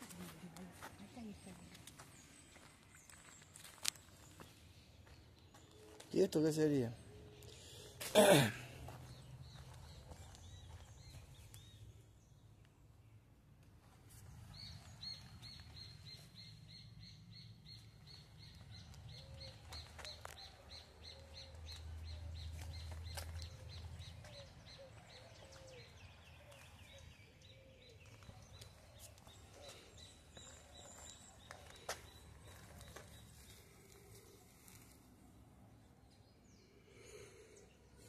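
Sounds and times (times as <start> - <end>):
soft rounded bird calls: 14.2 - 38.0.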